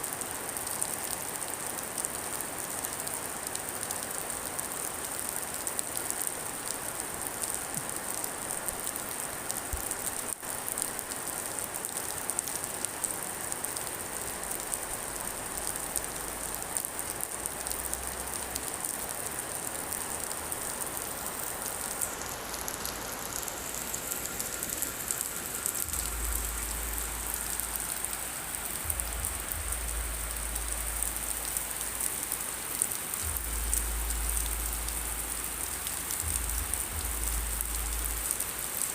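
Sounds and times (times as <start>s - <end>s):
rain pattering: 0.0s - 38.9s.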